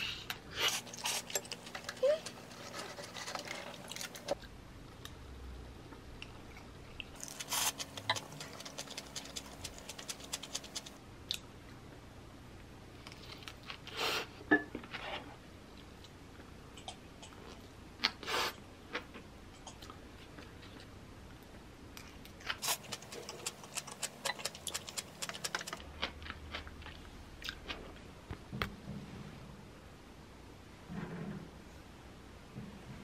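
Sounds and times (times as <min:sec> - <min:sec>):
crackly chewing: 0:00.7 - 0:04.5, 0:06.2 - 0:11.4, 0:22.0 - 0:27.9.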